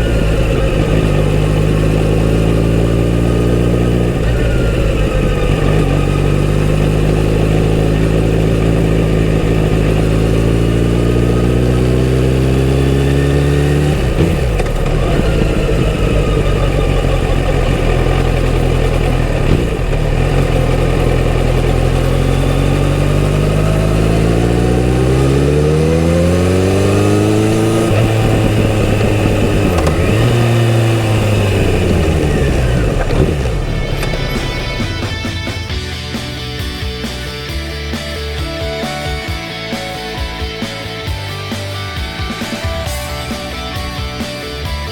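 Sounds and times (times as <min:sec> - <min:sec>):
motorcycle engine under throttle: 0:00.0 - 0:44.9.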